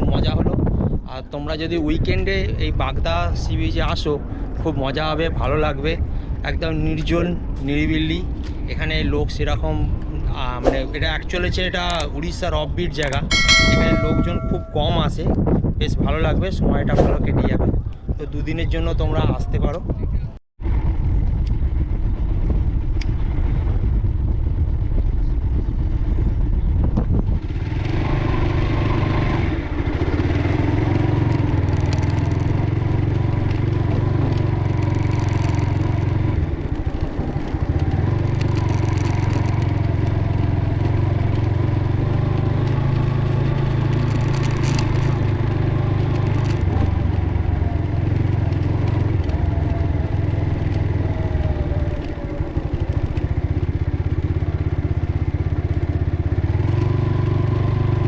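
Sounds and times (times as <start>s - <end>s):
rough noise: 10.6s - 12.0s
motorcycle engine running: 13.0s - 15.0s, 20.6s - 58.0s.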